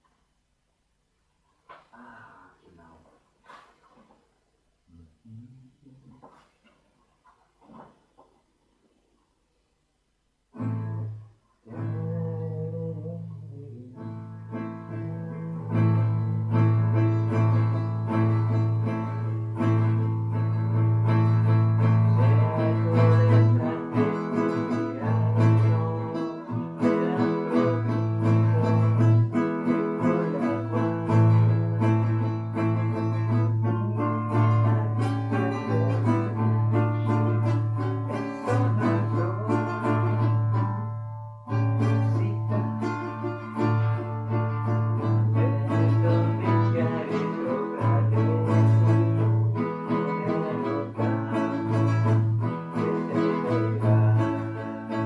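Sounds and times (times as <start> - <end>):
guitar plucked notes: 10.6 - 55.0.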